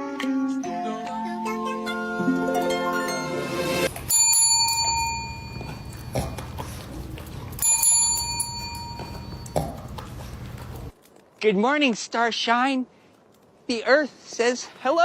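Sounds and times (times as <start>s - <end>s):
small bell ringing: 4.0s - 6.2s, 7.5s - 9.6s.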